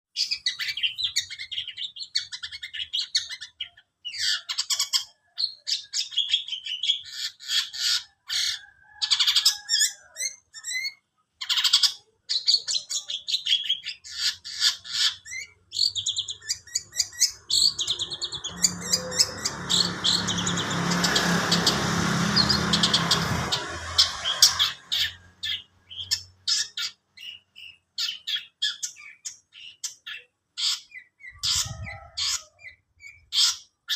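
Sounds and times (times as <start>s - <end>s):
songbird singing: 0.1s - 33.9s
rushing noise with low hum: 18.3s - 25.3s.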